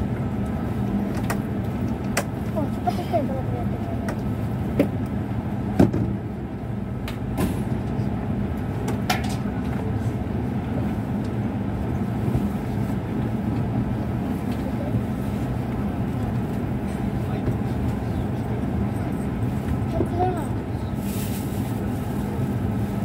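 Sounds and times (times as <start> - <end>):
train cabin rumble: 0.0 - 23.0.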